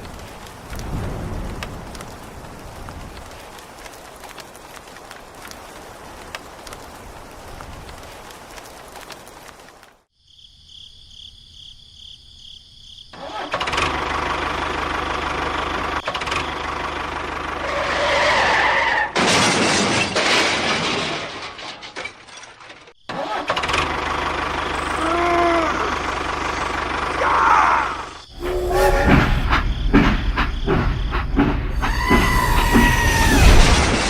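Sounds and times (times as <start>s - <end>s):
engine running: 23.7s - 27.2s.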